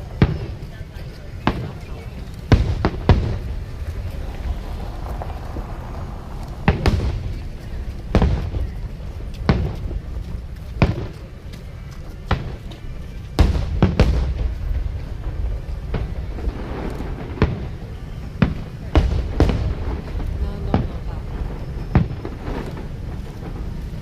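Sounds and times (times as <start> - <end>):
fireworks booming: 0.0 - 24.0
low rumble: 1.8 - 11.9.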